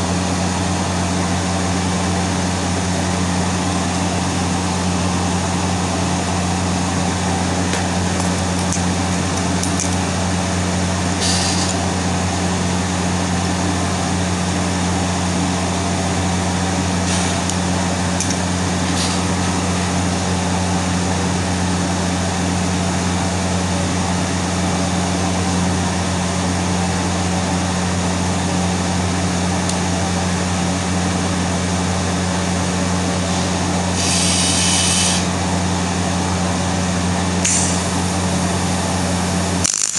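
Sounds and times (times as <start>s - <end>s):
low mains buzz: 0.0s - 39.9s
welding arc hissing and crackling: 11.2s - 11.8s, 33.9s - 35.4s, 37.4s - 38.0s.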